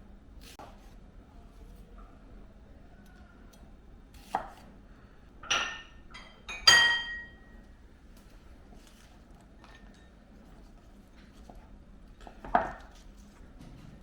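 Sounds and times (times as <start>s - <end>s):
kitchenware knocks ringing: 5.4s - 7.5s.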